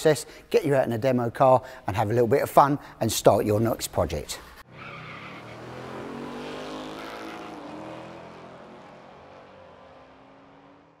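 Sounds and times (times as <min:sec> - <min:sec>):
car engine accelerating: 0:04.7 - 0:11.0.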